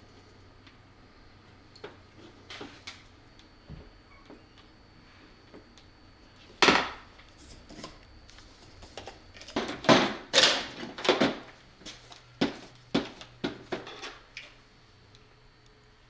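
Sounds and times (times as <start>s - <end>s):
tools clattering on workbench: 12.4s - 14.2s.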